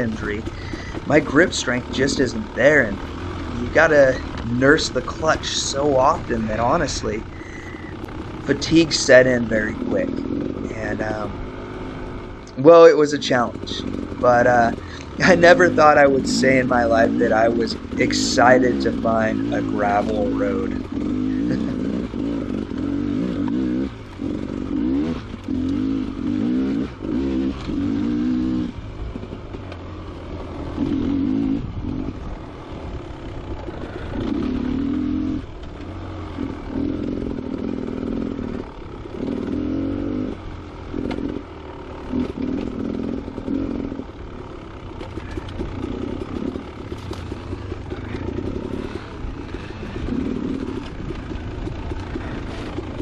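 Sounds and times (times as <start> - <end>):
clatter and scraping: 0.0 - 11.3, 44.8 - 53.0
dirt bike engine revving: 0.0 - 53.0.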